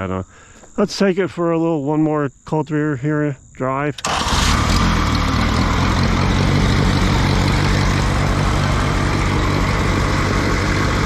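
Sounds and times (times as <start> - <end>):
tractor engine running: 4.0 - 11.0.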